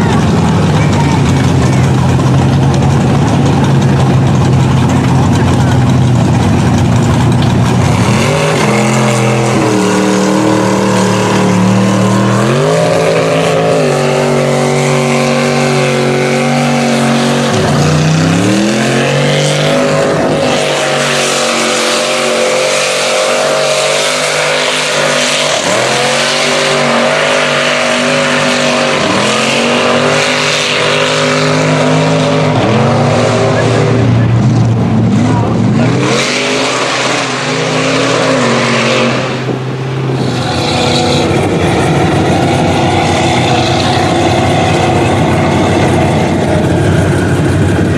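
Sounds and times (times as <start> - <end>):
tires spinning and spraying mud: 0.0 - 47.9
truck engine revving: 0.0 - 47.9.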